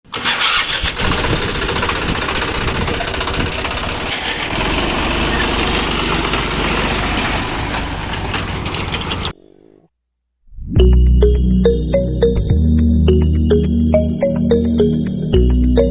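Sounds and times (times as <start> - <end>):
motor running with rattling: 0.6 - 9.3.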